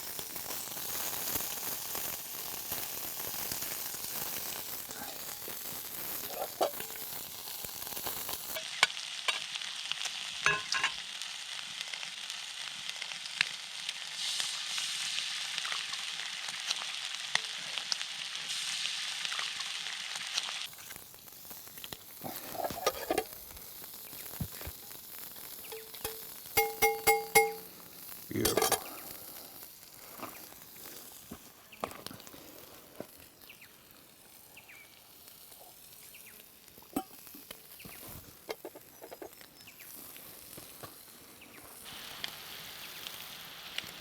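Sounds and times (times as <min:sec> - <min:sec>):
food sizzling in a pan: 0:00.0 - 0:44.0
utensil scraping a pan: 0:06.2 - 0:07.1, 0:22.2 - 0:23.4, 0:25.7 - 0:27.7, 0:28.4 - 0:28.9, 0:37.0 - 0:39.4
clinks: 0:10.5 - 0:11.0, 0:25.7 - 0:27.7, 0:28.4 - 0:28.9.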